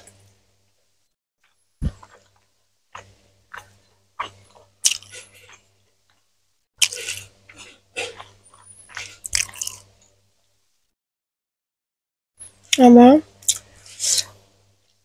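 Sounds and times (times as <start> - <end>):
chewing fried chicken: 1.4 - 10.0.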